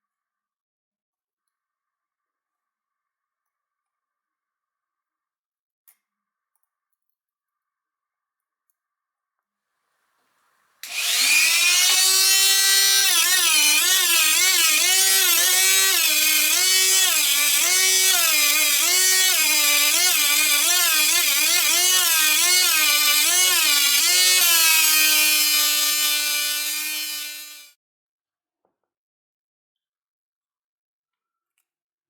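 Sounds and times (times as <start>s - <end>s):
power tool motor whining: 10.8s - 27.7s.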